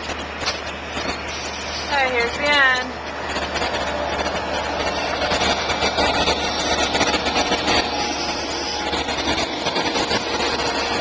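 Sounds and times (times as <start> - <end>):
diesel train engine: 0.0 - 11.0.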